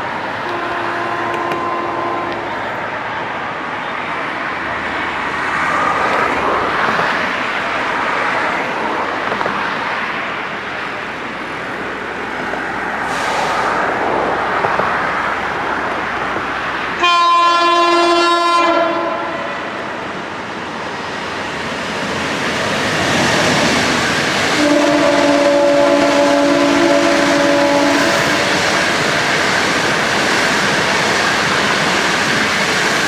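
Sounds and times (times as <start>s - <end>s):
train wheels on rails: 0.0s - 17.2s, 18.8s - 33.0s
railway horn blast: 0.4s - 3.2s, 17.0s - 19.8s, 24.5s - 28.8s.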